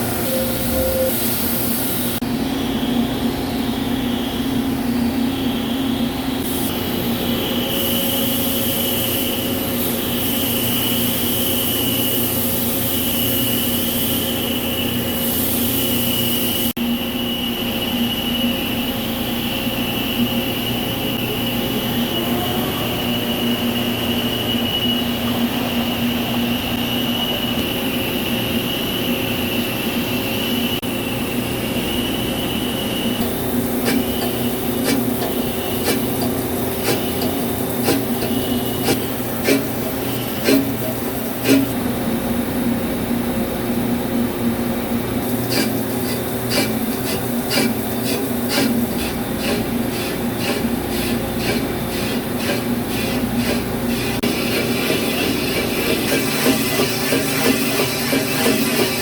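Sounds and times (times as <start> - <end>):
lathe machine hum: 44.2 - 59.0
high whine of cutting: 45.4 - 59.0.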